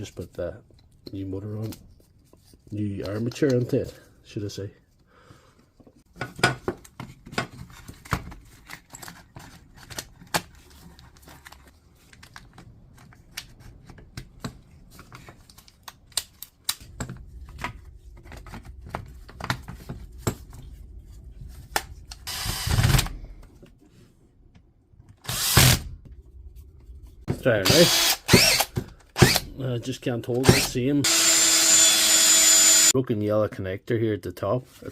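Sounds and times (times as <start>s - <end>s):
drill motor running: 22.3s - 23.0s, 25.3s - 25.8s, 27.6s - 29.5s, 30.4s - 32.9s.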